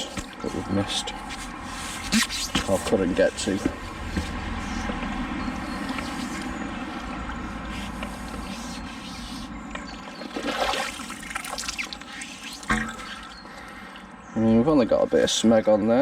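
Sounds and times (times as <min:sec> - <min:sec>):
wading through shallow water: 0:04.3 - 0:14.2.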